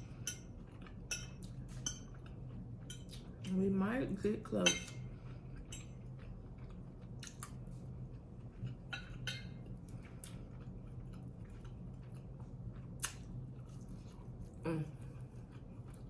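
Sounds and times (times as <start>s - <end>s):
person chewing food: 0.0s - 3.4s, 4.9s - 16.0s
low steady hum: 0.0s - 16.0s.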